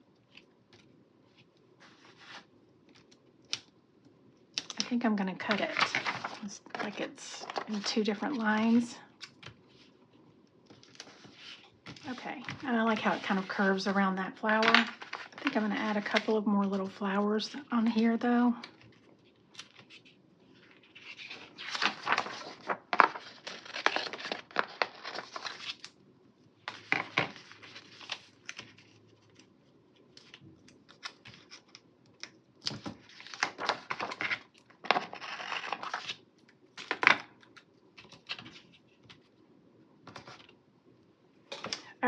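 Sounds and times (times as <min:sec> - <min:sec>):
paper sheet rustling: 0:00.3 - 0:02.5, 0:05.4 - 0:09.9, 0:10.7 - 0:18.0, 0:18.8 - 0:25.9, 0:26.7 - 0:29.5, 0:32.6 - 0:36.2.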